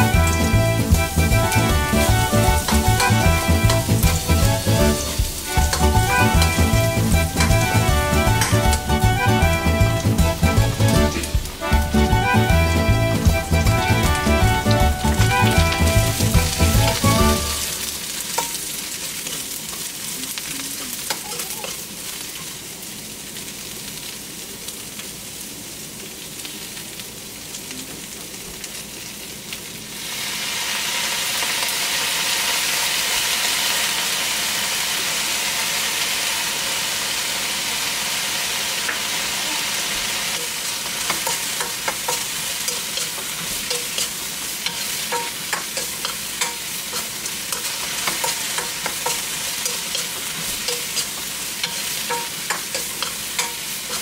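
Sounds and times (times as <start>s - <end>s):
food sizzling in a wok: 0.0s - 54.0s
spoon scraping and tapping pan: 8.4s - 8.8s, 18.3s - 18.6s, 40.4s - 54.0s.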